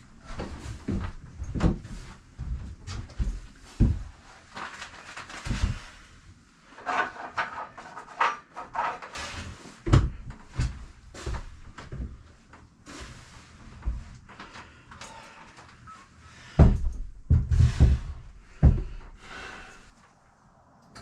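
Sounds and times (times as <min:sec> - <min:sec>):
scraping or rubbing: 0:06.7 - 0:09.8
knocks and thumps on wood: 0:16.6 - 0:19.1.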